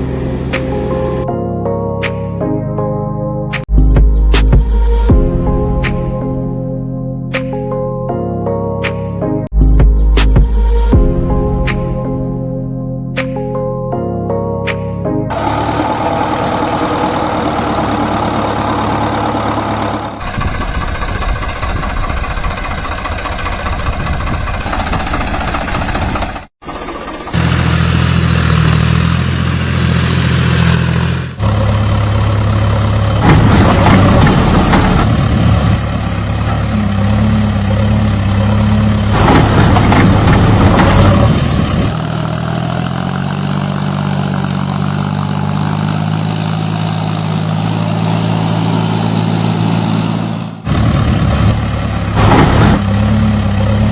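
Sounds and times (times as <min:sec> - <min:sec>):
heavy vehicle engine running: 0:00.0 - 0:01.3, 0:15.3 - 0:53.9.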